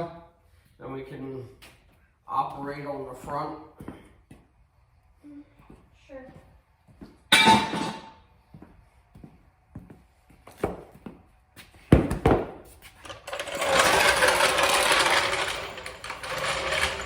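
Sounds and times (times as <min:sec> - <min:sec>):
fast mechanical rattling: 0:13.0 - 0:17.0
metal knocks and clank: 0:13.0 - 0:17.0.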